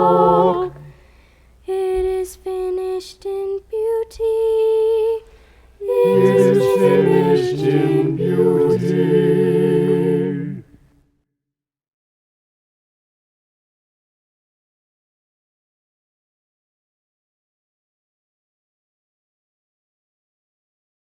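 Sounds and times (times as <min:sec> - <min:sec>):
choir singing held chord: 0:00.0 - 0:00.9, 0:05.8 - 0:10.8
solo voice singing: 0:05.8 - 0:10.7.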